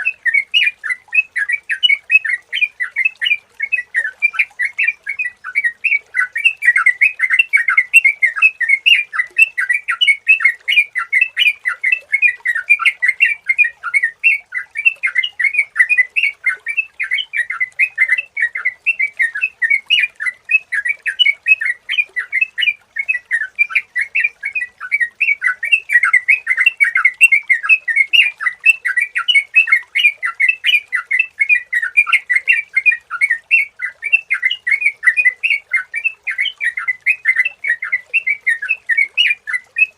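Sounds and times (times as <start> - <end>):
bird singing bubbly notes: 0.0 - 39.9.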